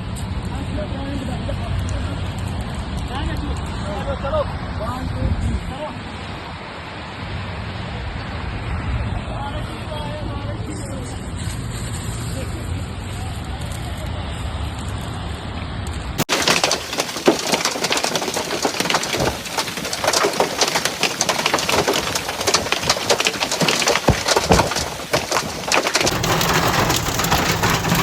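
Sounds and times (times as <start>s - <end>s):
hailstones pelting hard surfaces: 16.2s - 28.0s.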